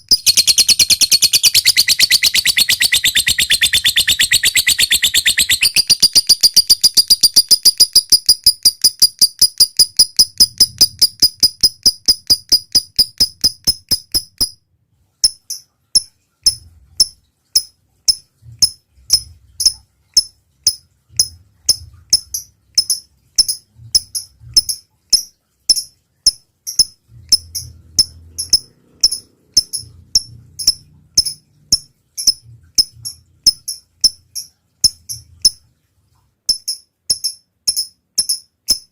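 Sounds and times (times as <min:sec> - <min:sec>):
lovebird chirping fast: 0:00.0 - 0:14.4
lovebird ticking: 0:00.0 - 0:14.6, 0:15.2 - 0:35.6, 0:36.5 - 0:38.9.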